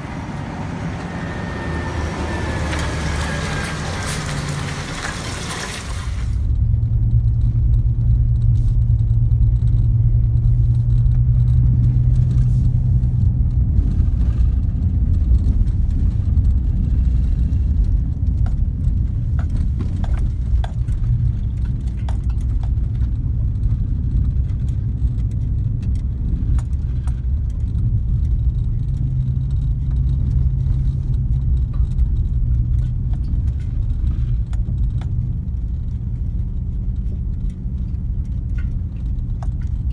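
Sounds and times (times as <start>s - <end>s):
truck engine rumbling: 0.0s - 39.9s
light clicks and rattles: 14.2s - 39.9s.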